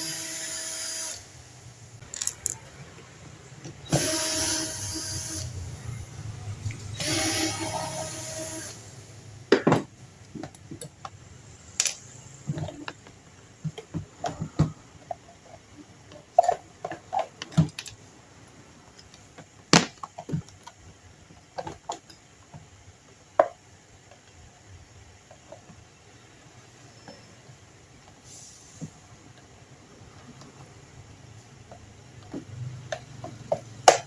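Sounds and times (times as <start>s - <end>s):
tools clicking on fan parts: 2.0s - 2.6s.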